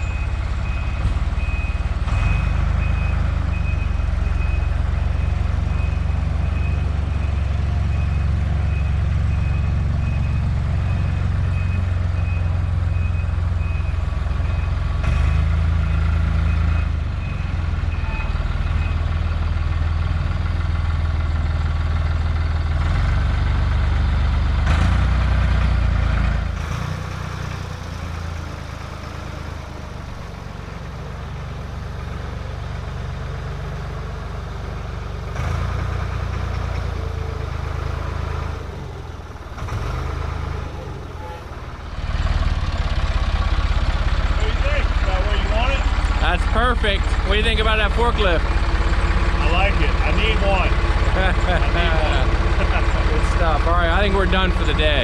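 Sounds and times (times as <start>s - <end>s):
reversing alarm beeping: 0.0s - 20.0s
forklift engine running: 0.0s - 55.0s.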